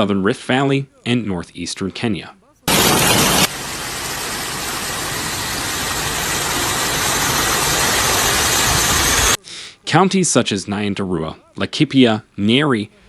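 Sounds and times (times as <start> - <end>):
loud rushing noise: 2.7 - 9.4.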